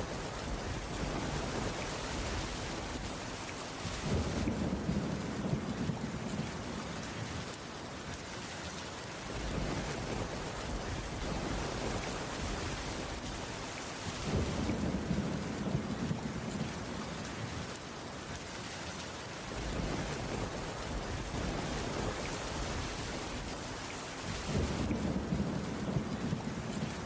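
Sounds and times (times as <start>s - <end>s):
low rumble of thunder: 0.0s - 7.6s, 9.2s - 17.8s, 19.4s - 27.0s
rain on a wooden roof: 0.0s - 27.0s.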